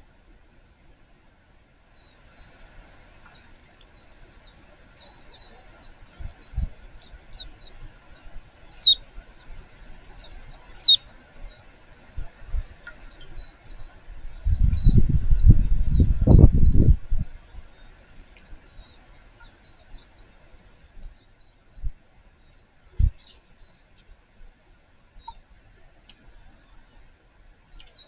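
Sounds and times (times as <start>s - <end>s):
low rumbling noise: 0.0s - 24.4s
small birds chirping: 1.8s - 28.0s
downward-sweeping bird calls: 1.9s - 11.7s, 12.4s - 18.0s, 25.2s - 27.0s, 27.7s - 28.0s.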